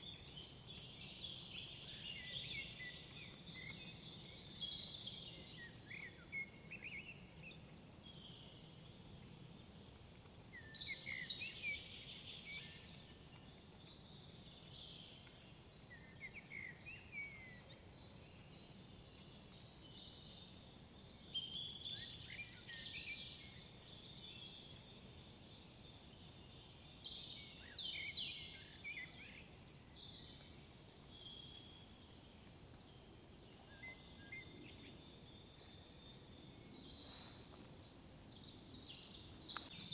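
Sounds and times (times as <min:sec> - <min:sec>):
faint background hiss: 0:00.0 - 0:39.9.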